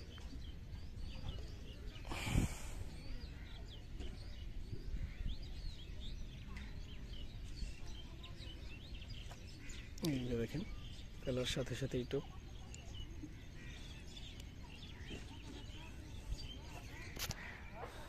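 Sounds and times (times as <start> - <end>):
low outdoor background noise: 0.0 - 18.0
small birds chirping: 0.0 - 18.0.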